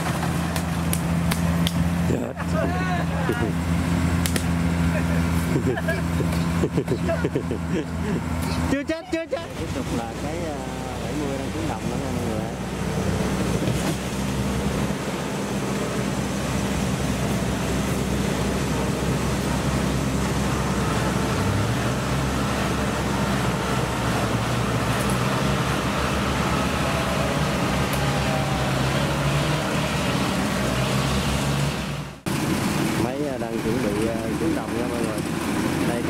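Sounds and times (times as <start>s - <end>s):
combine harvester diesel engine: 0.0s - 36.0s.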